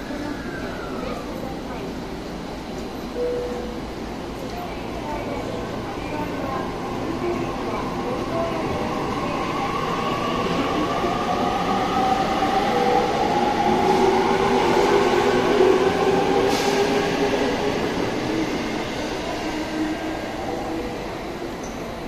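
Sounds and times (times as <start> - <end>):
rising train whine: 0.0 - 22.0
train wheels rolling on rails: 5.4 - 22.0.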